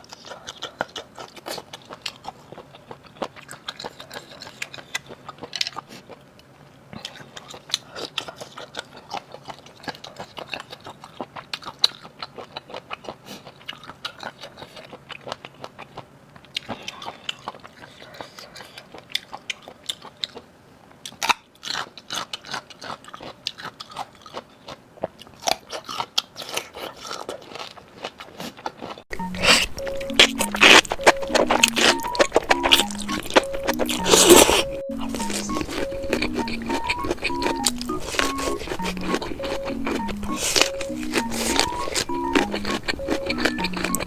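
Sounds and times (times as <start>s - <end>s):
crunching and chewing seafood: 0.0s - 44.0s
background music: 29.1s - 44.0s.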